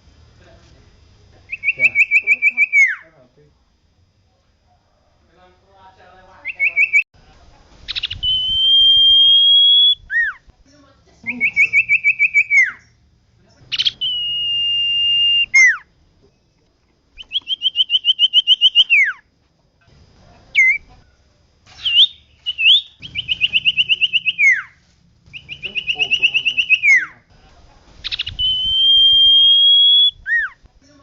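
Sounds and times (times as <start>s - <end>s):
bird singing whistled phrases: 1.5s - 3.0s, 7.9s - 10.4s, 11.3s - 13.0s, 13.7s - 15.9s, 17.2s - 19.2s, 20.6s - 20.9s, 21.8s - 27.2s, 28.1s - 30.6s.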